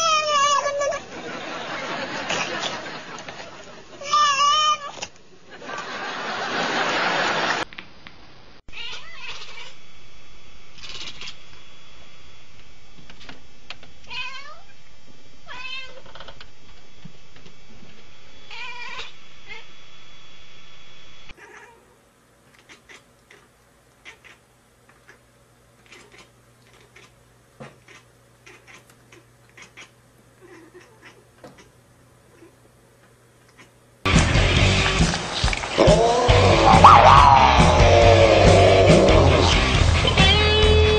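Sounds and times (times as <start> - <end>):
cat meowing: 0.0 - 1.0, 4.0 - 5.0, 8.7 - 9.8, 14.1 - 14.6, 15.5 - 16.0, 18.5 - 19.6, 21.4 - 21.9, 35.8 - 39.6
cat chattering: 8.8 - 9.8, 10.8 - 11.4, 22.5 - 24.4, 25.8 - 27.2, 27.8 - 32.6, 33.5 - 33.8.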